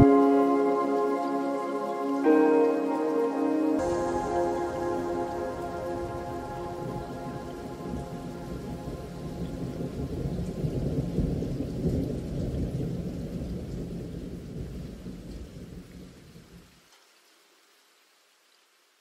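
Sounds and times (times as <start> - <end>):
rain hiss: 0.0 - 19.0
thunder rumble: 3.8 - 16.6.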